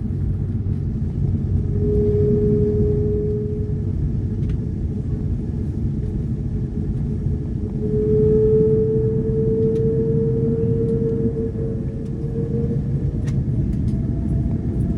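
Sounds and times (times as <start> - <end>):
aircraft cabin rumble: 0.0 - 14.9
engine tone rising in pitch: 1.4 - 4.4, 7.6 - 14.9.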